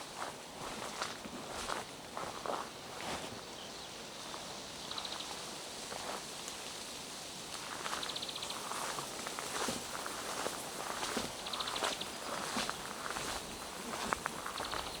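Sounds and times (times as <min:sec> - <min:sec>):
footsteps on wet ground: 0:00.0 - 0:03.4, 0:07.5 - 0:15.0.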